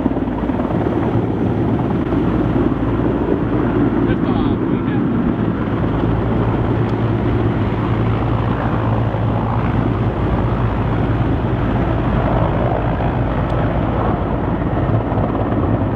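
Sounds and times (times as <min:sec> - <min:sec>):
helicopter rotor and engine: 0:00.0 - 0:15.9.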